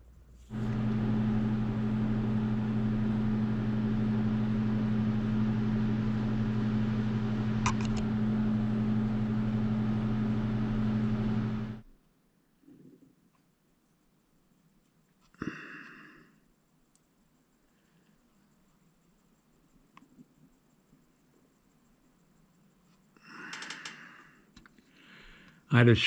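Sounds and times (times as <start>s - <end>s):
small motor humming: 0.5s - 11.8s.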